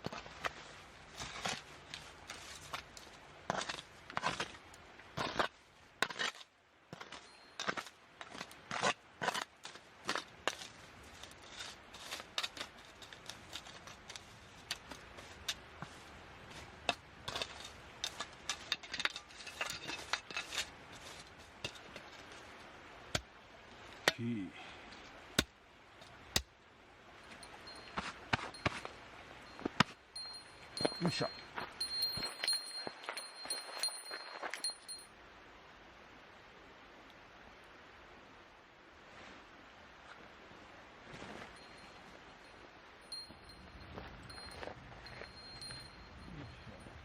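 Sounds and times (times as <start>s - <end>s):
light metallic jangle: 7.2s - 7.8s, 27.4s - 35.1s, 41.4s - 47.0s.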